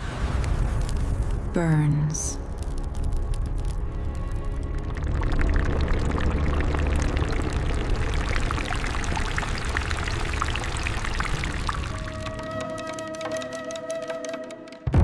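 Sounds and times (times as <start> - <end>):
dense crackling pattering: 0.0 - 12.4
low rumbling drone: 2.4 - 12.2.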